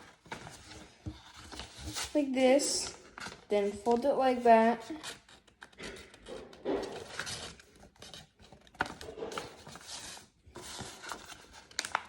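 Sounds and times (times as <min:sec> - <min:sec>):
paper rustling and rubbing: 0:00.0 - 0:04.0, 0:05.0 - 0:12.0
sharp paper crinkle: 0:04.8 - 0:12.0.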